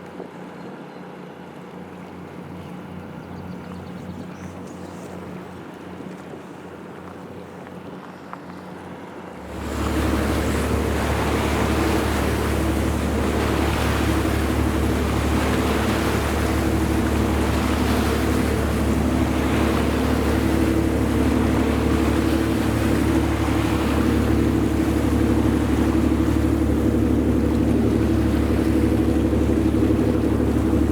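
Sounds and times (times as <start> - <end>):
water rushing: 9.0 - 30.9
diesel engine droning: 9.3 - 30.9.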